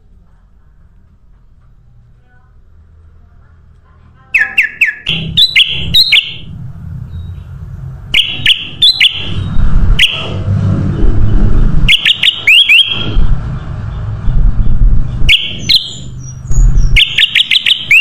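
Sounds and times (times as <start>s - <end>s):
bulbul calling: 4.4s - 6.4s, 15.3s - 18.0s
loud low rumble: 5.1s - 17.0s.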